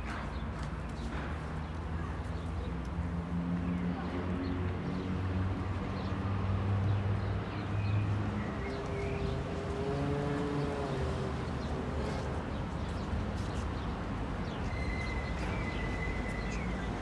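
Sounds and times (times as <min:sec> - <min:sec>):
passing traffic hum: 0:00.0 - 0:17.0.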